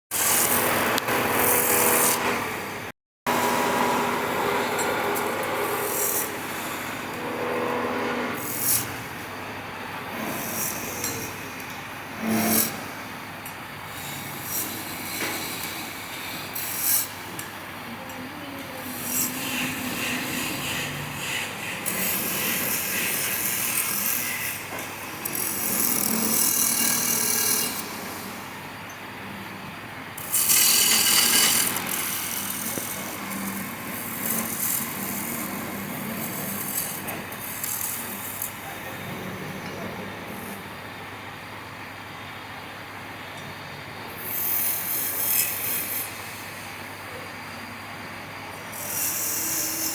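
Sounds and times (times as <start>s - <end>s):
wood rasping on a lathe: 18.9s - 27.8s, 30.2s - 38.5s.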